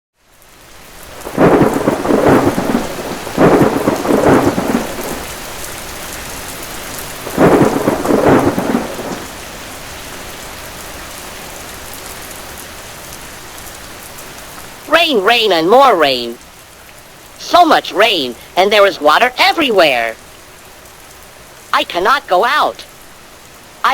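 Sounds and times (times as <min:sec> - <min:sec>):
heavy rain: 0:00.2 - 0:23.9
thunder rolling: 0:01.1 - 0:09.5.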